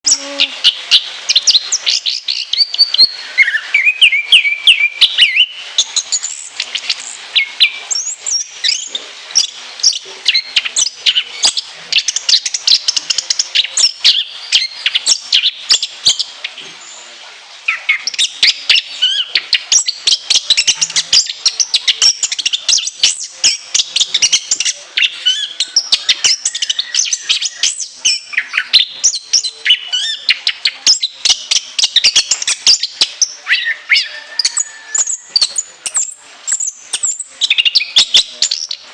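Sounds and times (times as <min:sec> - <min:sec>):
thrush singing shrill high notes: 0:00.0 - 0:01.4.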